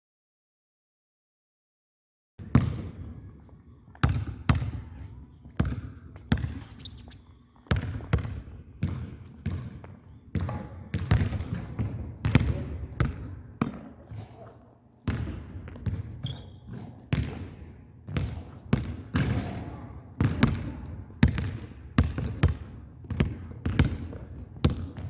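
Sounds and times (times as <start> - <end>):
basketball bouncing on gym floor: 2.4 - 3.3, 3.9 - 6.7, 7.7 - 14.0, 15.0 - 25.0.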